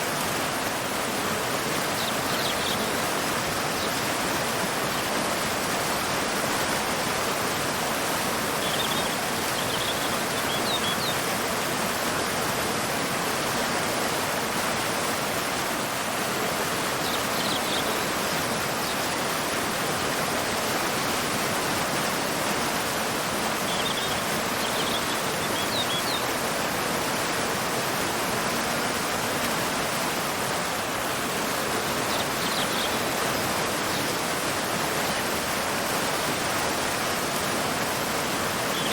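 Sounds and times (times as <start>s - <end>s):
waterfall rushing: 0.0s - 38.9s
bird chirping: 8.6s - 11.2s, 17.0s - 18.0s, 23.7s - 26.2s, 32.1s - 33.1s.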